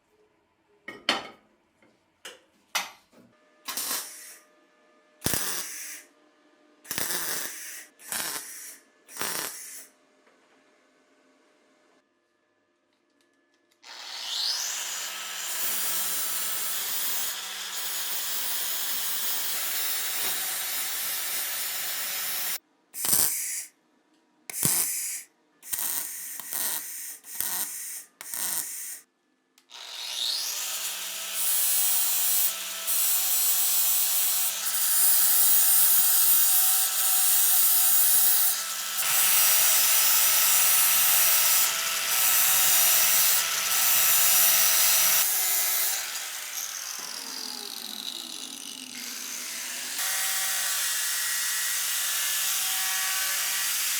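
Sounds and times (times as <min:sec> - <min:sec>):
electric abrasive tool whining: 0:13.8 - 0:22.6, 0:29.7 - 0:53.9.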